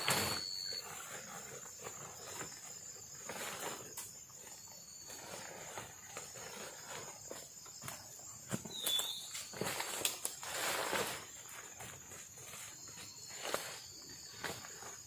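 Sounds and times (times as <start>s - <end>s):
night insects chorus: 0.0s - 15.0s
rustles: 0.0s - 15.0s.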